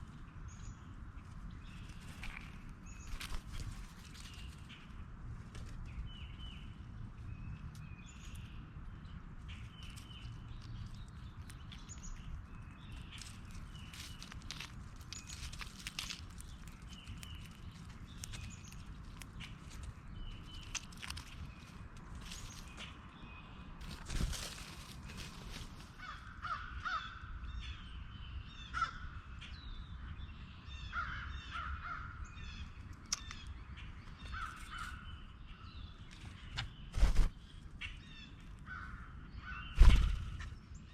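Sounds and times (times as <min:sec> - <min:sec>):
harsh crow-like bird calls: 0:26.0 - 0:27.4, 0:28.6 - 0:29.3, 0:30.8 - 0:32.7, 0:34.2 - 0:35.3, 0:37.8 - 0:40.7.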